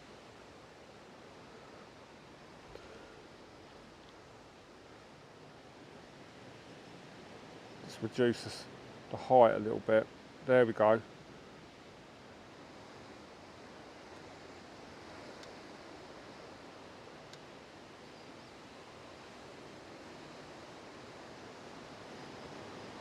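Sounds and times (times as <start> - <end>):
faint background hiss: 0.0 - 23.0
faint clicks: 17.3 - 17.5.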